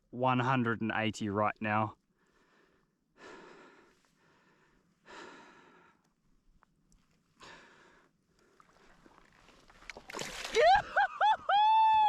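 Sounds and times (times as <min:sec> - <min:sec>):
man breathing hard: 0:02.2 - 0:06.1, 0:07.4 - 0:08.7.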